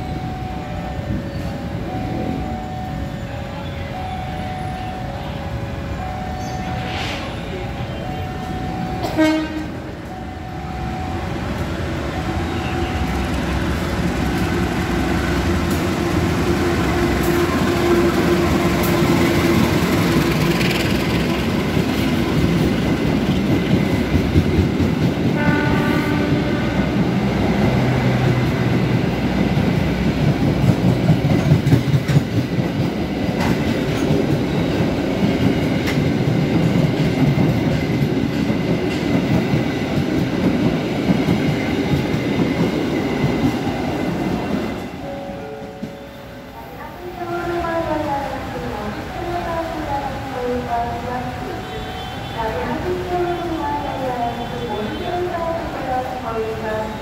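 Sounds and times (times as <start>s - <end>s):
passing train rumble: 0.0s - 57.0s
train horn blast: 9.0s - 9.9s, 25.4s - 27.3s, 51.5s - 52.6s.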